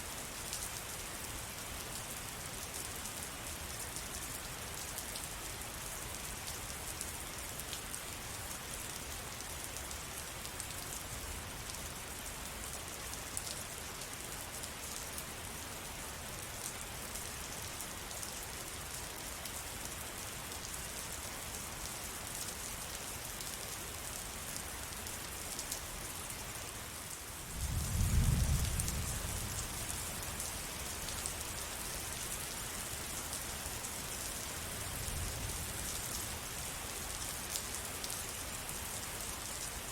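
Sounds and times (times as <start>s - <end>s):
steady rain falling: 0.0s - 39.9s
low thunder rumble: 27.6s - 29.4s.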